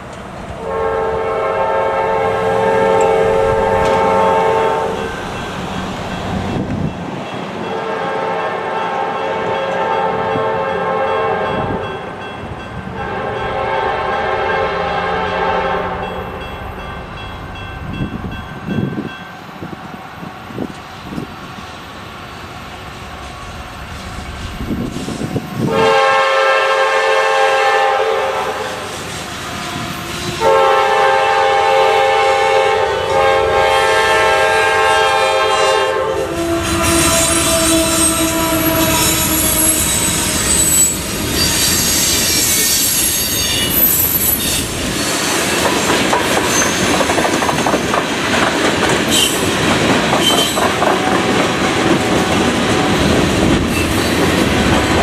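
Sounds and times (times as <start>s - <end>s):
locomotive horn blasts: 0.6s - 5.3s, 7.7s - 12.0s, 12.9s - 16.4s, 25.6s - 28.9s, 29.6s - 41.8s
high-pitched wheel squeal: 36.3s - 45.6s, 46.5s - 47.0s, 50.2s - 50.6s
wheels clattering over rail joints: 45.2s - 55.0s.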